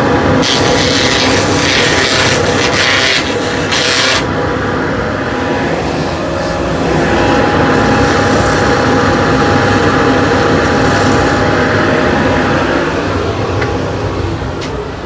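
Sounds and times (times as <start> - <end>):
dust extractor running: 0.0 - 15.0
sanding wood: 0.4 - 4.3.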